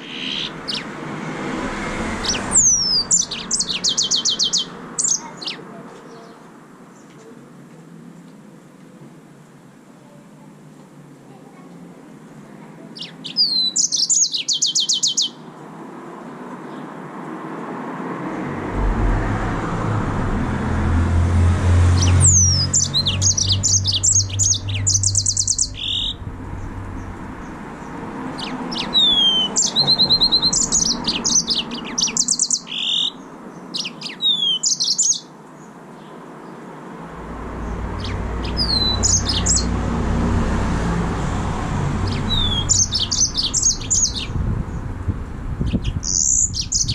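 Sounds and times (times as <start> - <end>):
finch singing trills: 0.0 - 0.9, 2.3 - 6.4, 22.0 - 26.2, 27.8 - 35.3, 37.6 - 39.7, 42.0 - 44.4, 45.7 - 46.9
low rumble: 18.3 - 28.8, 37.0 - 41.9.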